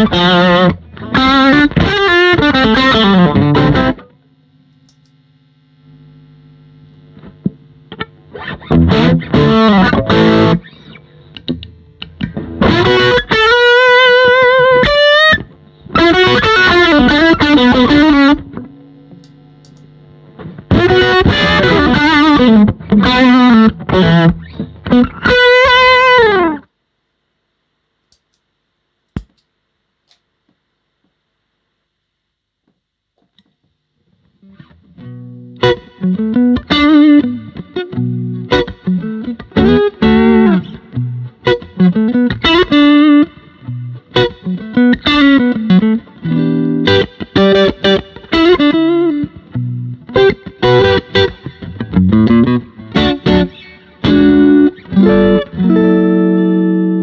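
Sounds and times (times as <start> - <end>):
overdriven electric guitar: 0.0 - 26.7, 33.2 - 57.0
faint click: 4.7 - 5.2, 19.1 - 19.9.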